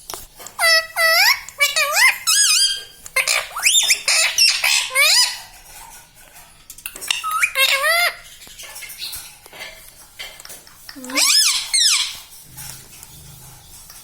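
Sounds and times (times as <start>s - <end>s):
parrot calling and squawking: 0.4s - 5.6s, 7.0s - 9.2s, 10.9s - 13.4s.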